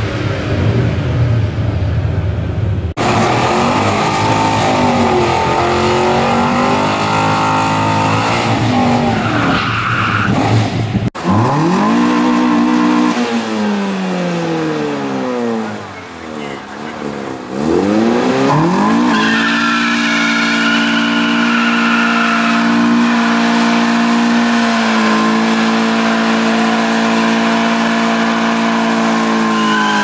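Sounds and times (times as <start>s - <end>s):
car engines revving hard: 2.9s - 30.0s
tyre squeal: 19.0s - 23.2s, 29.3s - 30.0s.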